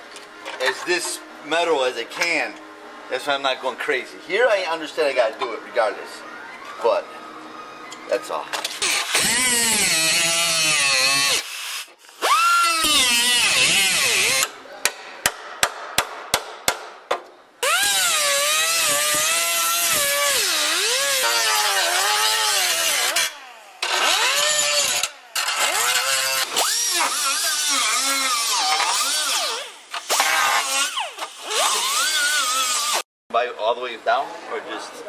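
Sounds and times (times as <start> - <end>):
power grinder on metal: 8.6 - 14.5, 17.6 - 33.0.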